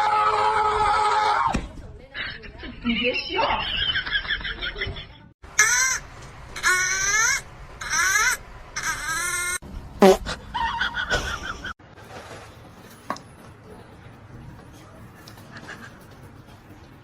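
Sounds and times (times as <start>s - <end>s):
animal calling harshly: 5.5s - 10.9s.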